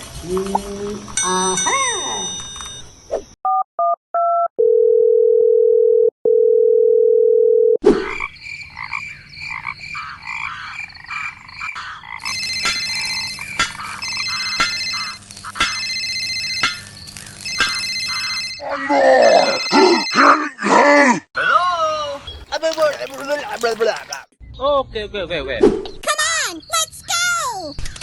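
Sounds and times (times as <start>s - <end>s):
dial tone: 3.5s - 7.8s
electronic chirps and ringing trill: 12.3s - 16.8s.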